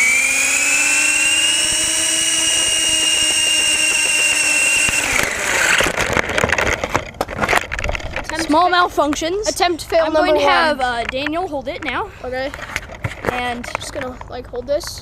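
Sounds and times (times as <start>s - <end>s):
electric motor and rotor whining: 0.0s - 8.4s
clattering and knocking: 5.2s - 8.6s.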